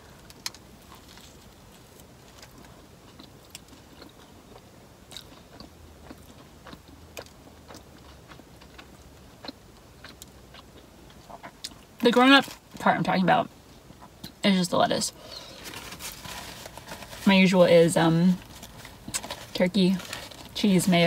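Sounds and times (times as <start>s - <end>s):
close chewing with crunches: 0.2s - 12.6s, 18.3s - 21.0s.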